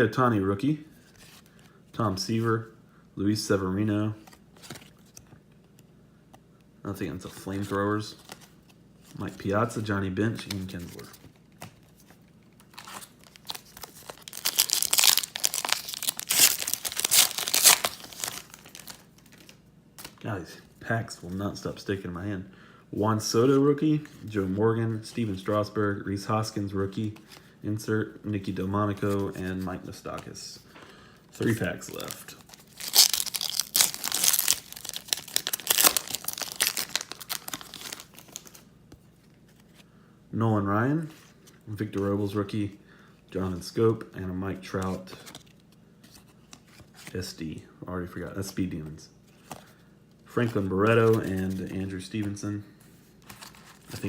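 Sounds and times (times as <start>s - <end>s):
plastic wrapper crinkling: 12.6s - 20.2s, 31.4s - 38.7s.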